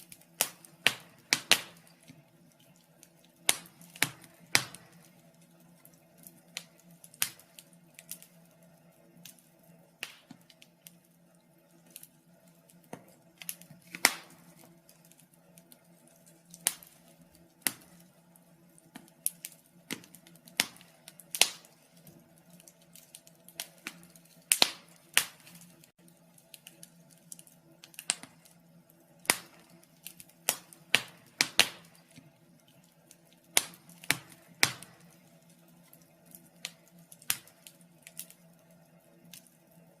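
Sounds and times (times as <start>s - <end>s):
faint steady hum: 0.0s - 40.0s
wood fire crackling: 0.0s - 40.0s.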